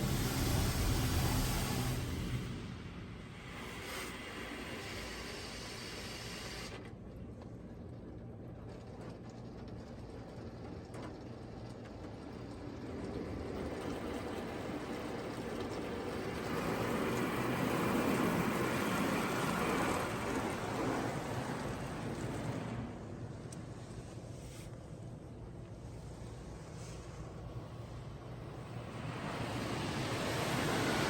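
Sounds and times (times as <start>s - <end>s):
high-pressure water jets spraying: 3.6s - 6.8s.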